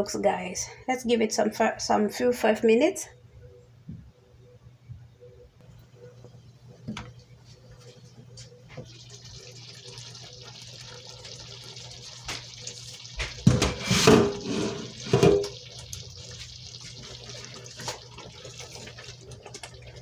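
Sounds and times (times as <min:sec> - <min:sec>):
pot simmering with bubbling hiss: 0:05.2 - 0:20.0.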